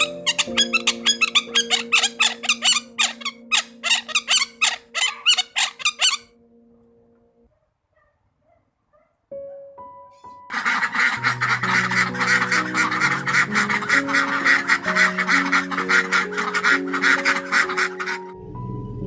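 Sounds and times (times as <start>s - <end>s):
held music chord: 0.0s - 4.9s, 9.4s - 19.0s
geese honking: 0.0s - 6.3s, 10.5s - 18.4s
piano notes: 0.0s - 7.5s, 9.3s - 19.0s.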